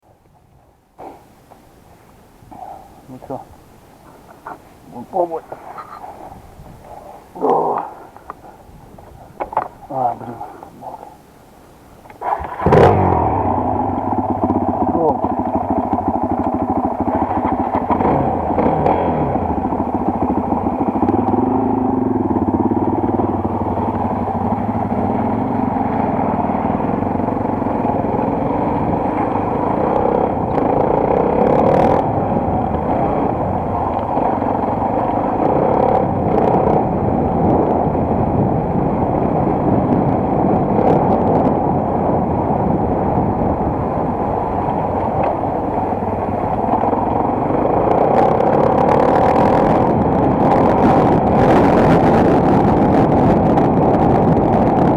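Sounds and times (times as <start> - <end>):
motorcycle engine running: 12.1 - 54.9.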